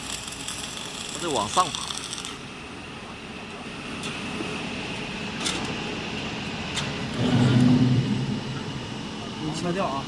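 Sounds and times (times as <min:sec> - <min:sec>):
welding machine hissing: 0:00.0 - 0:02.5
low droning hum: 0:06.0 - 0:10.0.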